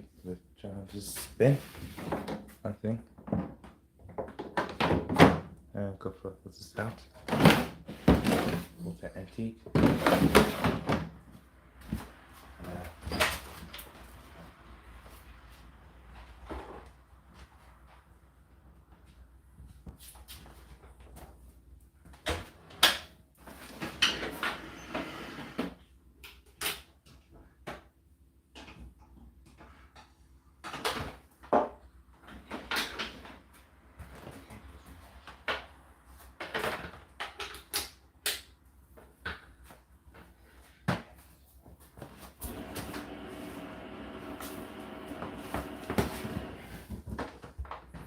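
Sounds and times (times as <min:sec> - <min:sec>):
laundry and plastic handling: 0:06.7 - 0:15.5, 0:38.9 - 0:48.0.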